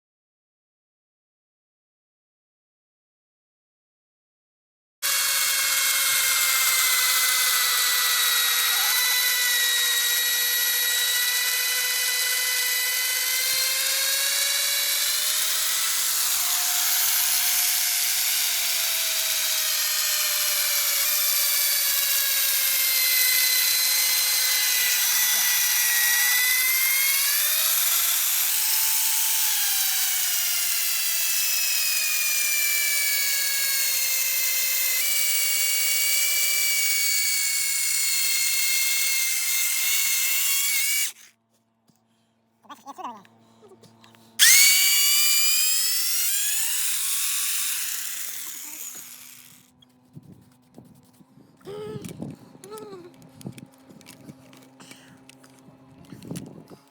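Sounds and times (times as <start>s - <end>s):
power drill boring into wood: 5.0s - 41.4s, 44.4s - 49.7s.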